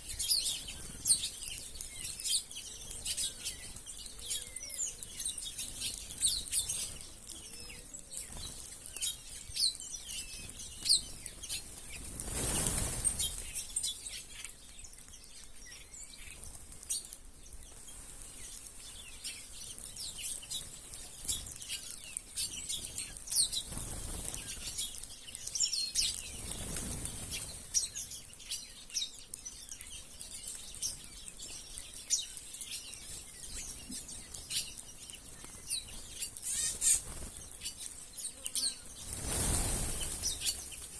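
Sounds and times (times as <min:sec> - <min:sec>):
small birds chirping: 0:00.0 - 0:40.9
bird wings whooshing: 0:12.0 - 0:13.6, 0:39.0 - 0:40.9.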